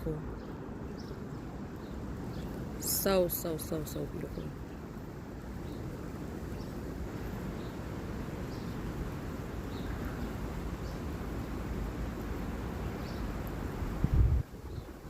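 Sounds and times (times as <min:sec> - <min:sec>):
wind on microphone: 0:13.0 - 0:15.0.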